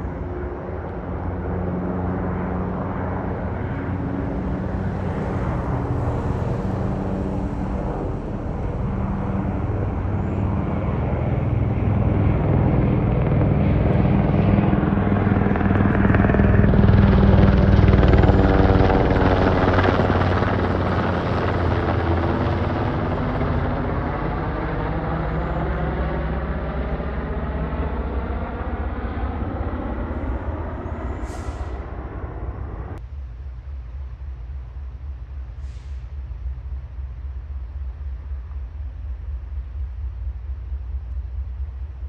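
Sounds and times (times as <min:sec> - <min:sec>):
helicopter flying past: 0:00.0 - 0:33.0.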